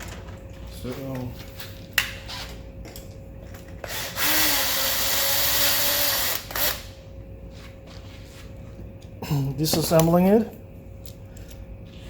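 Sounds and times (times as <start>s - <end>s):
electric drill running: 3.8s - 6.9s.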